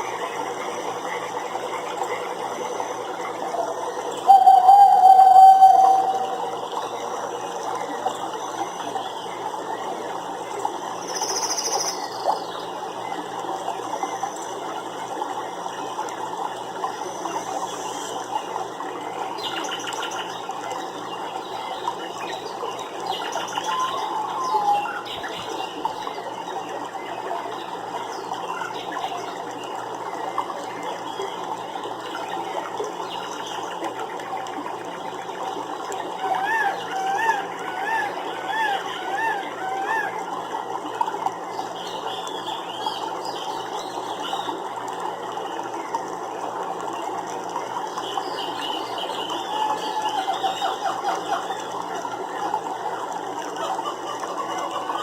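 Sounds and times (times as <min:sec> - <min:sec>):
running water: 0:00.0 - 0:55.0
bird chirps: 0:04.3 - 0:06.4.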